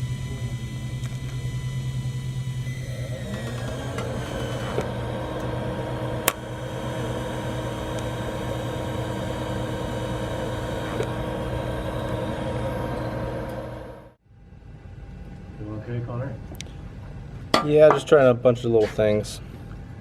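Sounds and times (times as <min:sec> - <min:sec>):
welding arc buzzing and hissing: 0:00.0 - 0:14.2.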